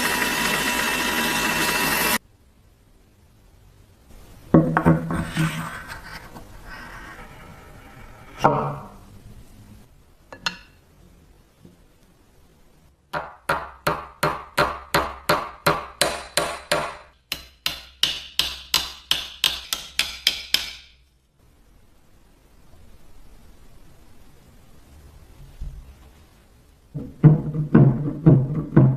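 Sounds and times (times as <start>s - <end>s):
hammer striking metal: 13.2s - 21.0s.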